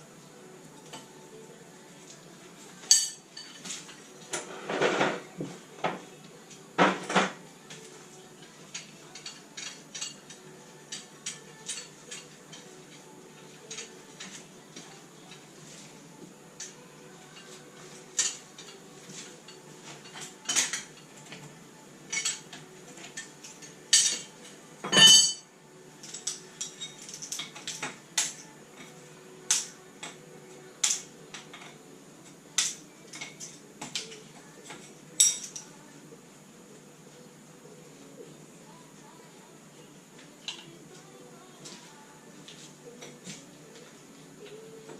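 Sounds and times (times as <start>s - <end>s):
metal hand tools clinking: 2.9s - 3.7s, 22.1s - 25.4s, 35.2s - 35.7s.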